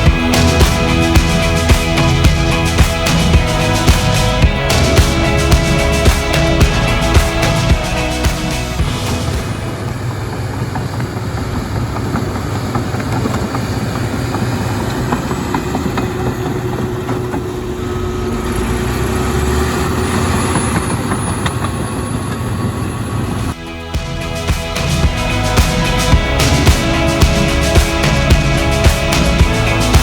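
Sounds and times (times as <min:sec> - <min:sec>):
diesel engine under load: 0:00.0 - 0:23.6
steel tracks clanking: 0:00.0 - 0:30.0.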